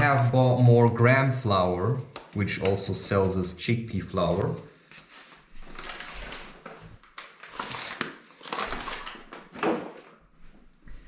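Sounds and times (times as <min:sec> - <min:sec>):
rustling and scraping: 0:04.3 - 0:10.7.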